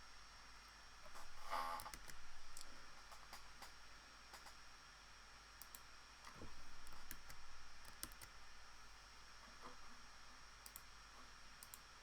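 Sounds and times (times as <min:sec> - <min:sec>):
faint hum with high whine: 0:00.0 - 0:12.0
computer mouse clicks: 0:01.8 - 0:04.6, 0:05.6 - 0:08.4, 0:10.6 - 0:10.9, 0:11.6 - 0:11.9.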